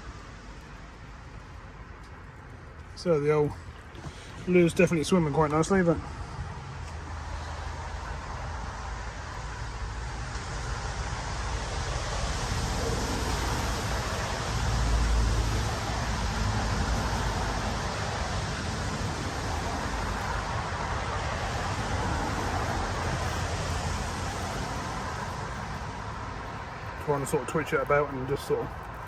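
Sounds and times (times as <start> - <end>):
wind buffeting microphone: 11.1 - 29.0.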